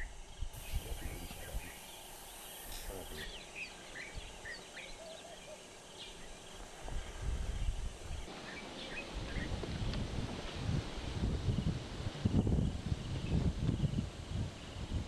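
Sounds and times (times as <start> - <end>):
bird chirps: 0.6 - 6.7
low rumble in gusts: 6.1 - 15.0.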